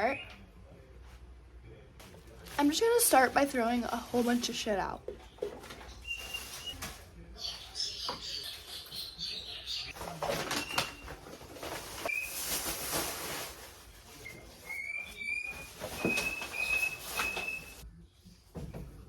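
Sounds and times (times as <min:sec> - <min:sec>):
rustling and clatter of handling: 0:02.0 - 0:07.1, 0:09.9 - 0:17.8
pet bird chirping: 0:05.2 - 0:06.8, 0:07.4 - 0:10.0.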